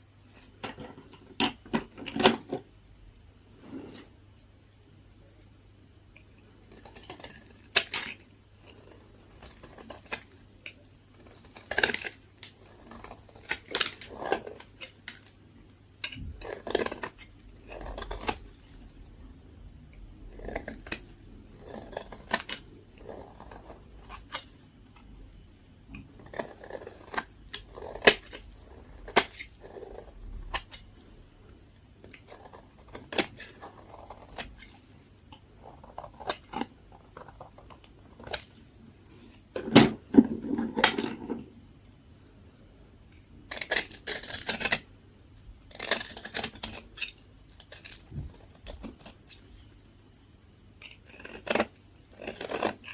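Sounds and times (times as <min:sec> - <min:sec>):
blade carving bar soap: 0:06.6 - 0:15.4, 0:16.0 - 0:19.0, 0:20.2 - 0:25.1, 0:25.9 - 0:30.9, 0:32.0 - 0:34.8, 0:35.5 - 0:38.6, 0:43.5 - 0:44.9, 0:45.7 - 0:49.4, 0:50.8 - 0:52.9.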